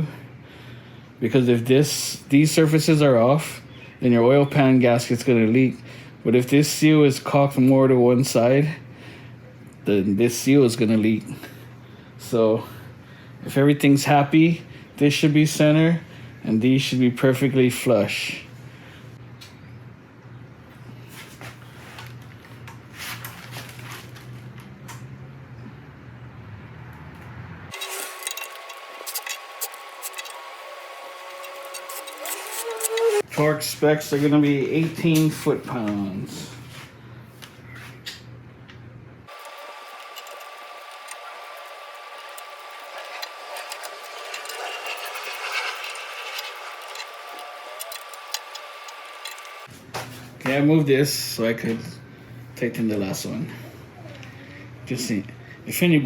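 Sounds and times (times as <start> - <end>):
rustling: 27.7 - 33.2
hand ratchet clicking: 27.7 - 33.3, 39.3 - 49.7
thin high whine: 27.7 - 33.3, 39.3 - 49.7.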